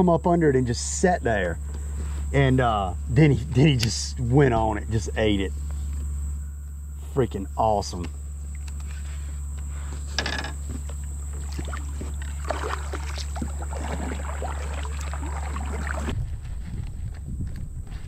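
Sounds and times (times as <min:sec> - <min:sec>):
steady low hum: 0:00.0 - 0:18.0
water splashes: 0:10.8 - 0:16.2.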